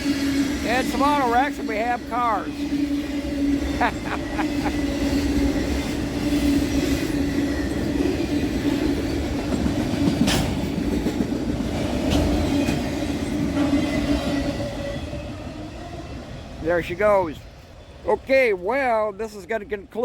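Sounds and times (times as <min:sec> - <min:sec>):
train wheels rumbling on rails: 0:00.0 - 0:20.0
wheels clacking over rail joints: 0:04.8 - 0:20.0.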